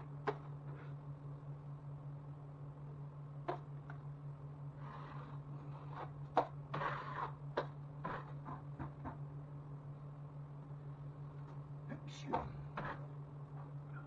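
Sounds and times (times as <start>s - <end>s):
steady low hum: 0.0s - 14.0s
scrapes and knocks: 4.8s - 9.2s, 12.3s - 13.8s.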